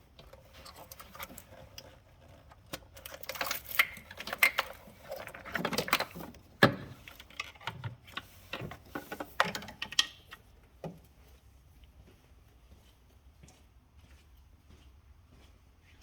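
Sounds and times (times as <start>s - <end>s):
irregular clicks and knocks: 2.6s - 11.0s.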